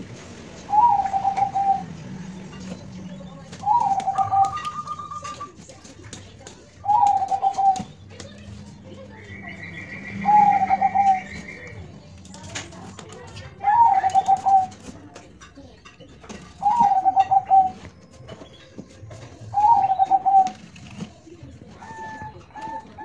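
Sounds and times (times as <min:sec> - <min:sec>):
dove cooing: 0:00.5 - 0:05.6, 0:06.8 - 0:11.8, 0:12.4 - 0:15.1, 0:16.4 - 0:23.0
bird trilling: 0:00.6 - 0:05.6, 0:06.8 - 0:11.8, 0:13.6 - 0:14.9, 0:16.4 - 0:20.8, 0:21.7 - 0:23.0.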